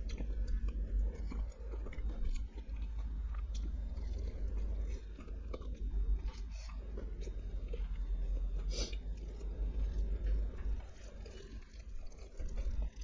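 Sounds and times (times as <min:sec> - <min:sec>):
person chewing: 0:00.0 - 0:13.0.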